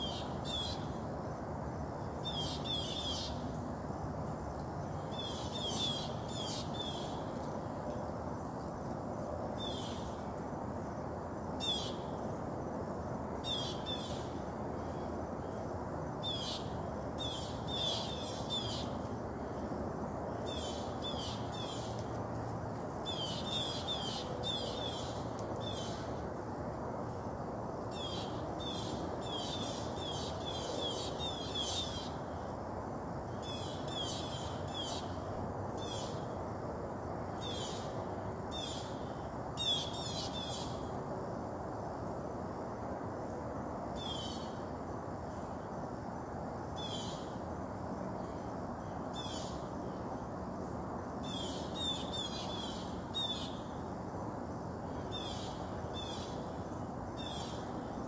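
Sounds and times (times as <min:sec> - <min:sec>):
low outdoor background noise: 0:00.0 - 0:58.0.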